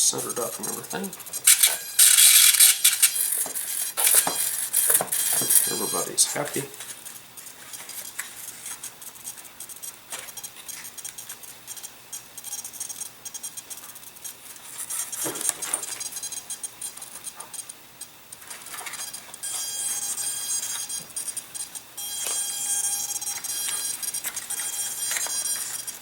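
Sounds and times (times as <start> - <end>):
high-pitched servo buzz: 0.1 - 8.2, 18.7 - 26.0.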